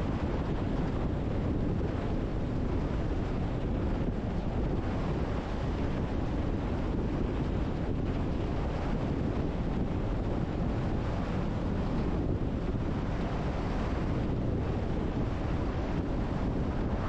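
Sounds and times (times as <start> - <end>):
wind on microphone: 0.0 - 17.0
car road and tyre noise: 13.0 - 17.0.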